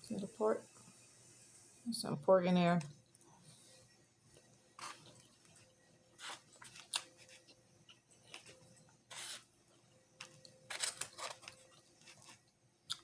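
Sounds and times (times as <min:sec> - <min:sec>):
utensil scraping fried rice: 0:04.8 - 0:05.1, 0:09.1 - 0:09.5.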